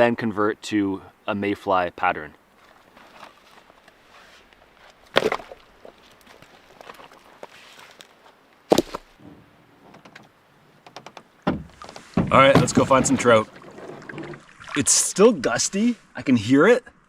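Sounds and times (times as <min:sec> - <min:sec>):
sharp knocks: 0:10.9 - 0:13.3.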